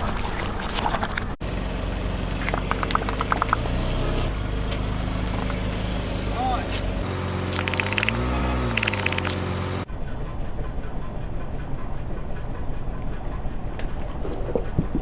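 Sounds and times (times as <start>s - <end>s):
car engine idling: 1.4s - 14.3s.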